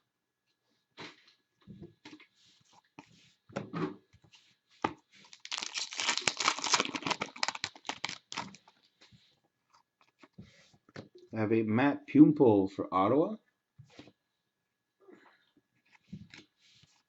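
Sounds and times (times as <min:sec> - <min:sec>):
card pack wrapper tearing and crinkling: 0:05.2 - 0:08.7.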